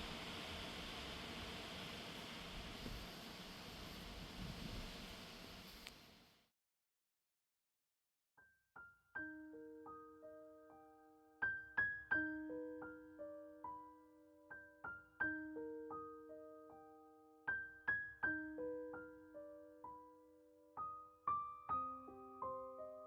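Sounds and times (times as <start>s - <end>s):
soft piano melody: 8.8s - 23.0s.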